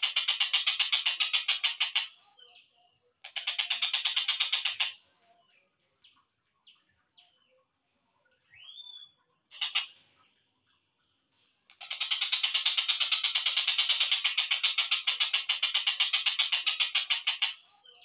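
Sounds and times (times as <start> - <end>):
kingfisher chattering call series: 3.2 - 5.0, 9.5 - 10.0, 11.7 - 17.6
kingfisher calls: 9.5 - 10.0.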